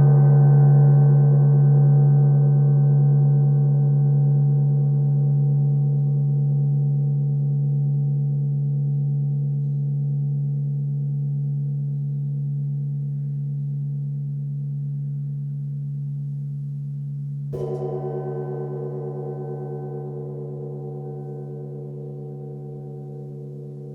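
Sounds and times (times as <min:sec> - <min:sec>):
gong ringing: 0:17.6 - 0:23.9.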